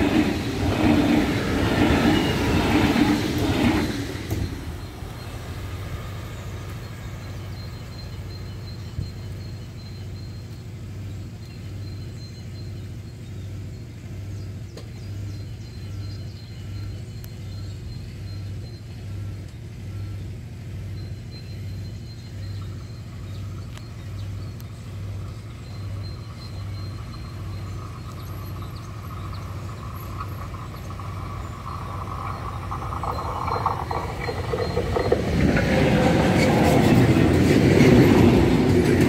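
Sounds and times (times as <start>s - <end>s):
train wheels rolling over rails: 0.0s - 10.6s, 21.2s - 39.0s.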